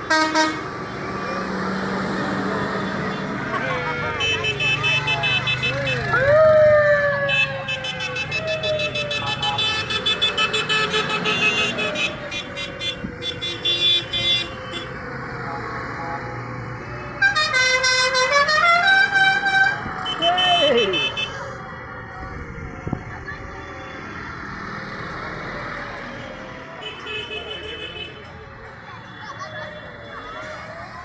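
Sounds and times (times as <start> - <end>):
vehicle horns sounding: 0.0 - 0.7, 2.9 - 6.2, 7.3 - 15.0, 17.1 - 21.4, 26.8 - 28.3.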